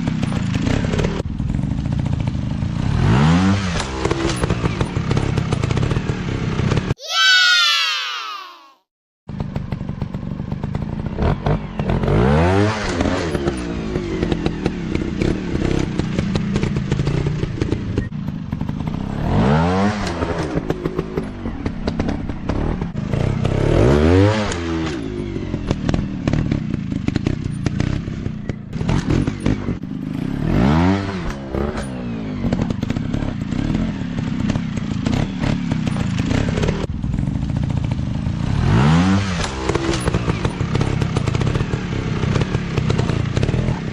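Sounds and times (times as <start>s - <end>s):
dirt bike engine revving: 10.7s - 36.9s, 38.4s - 43.9s.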